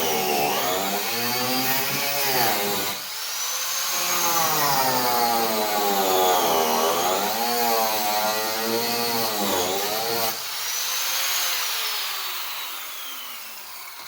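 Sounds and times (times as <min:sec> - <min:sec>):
power tool cutting wood: 0:00.0 - 0:14.0.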